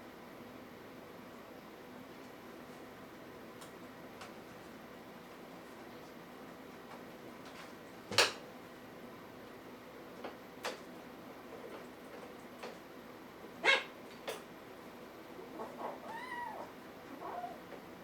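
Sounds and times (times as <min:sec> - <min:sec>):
kitten mewing: 0:15.4 - 0:17.6.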